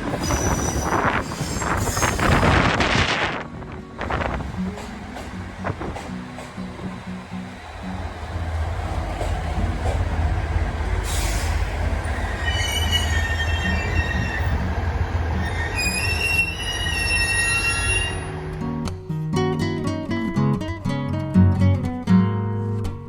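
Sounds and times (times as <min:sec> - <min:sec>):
wheels squealing: 0:00.0 - 0:02.8, 0:10.8 - 0:18.6
train engine rumble: 0:00.0 - 0:18.8.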